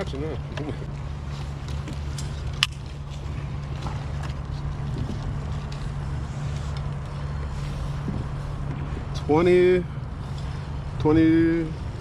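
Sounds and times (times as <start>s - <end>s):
wind on microphone: 4.6s - 12.0s.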